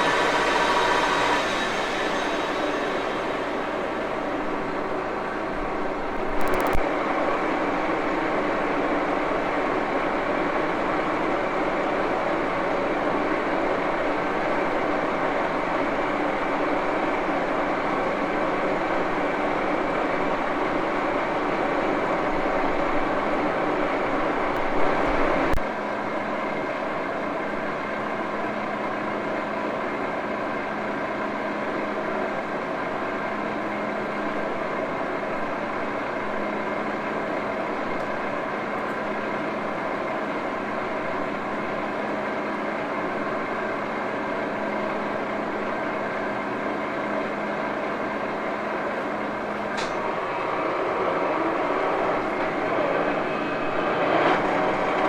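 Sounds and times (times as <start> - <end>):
high-pitched squeak: 0.0 - 5.4
lathe running: 0.0 - 5.6.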